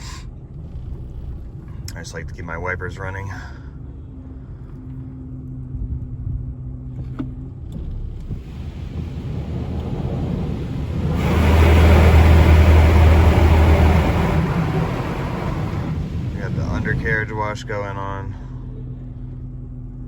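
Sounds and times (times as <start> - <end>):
heavy low rumble: 0.0 - 20.0
car idling: 7.8 - 19.7
high-pressure water spray: 8.3 - 17.2.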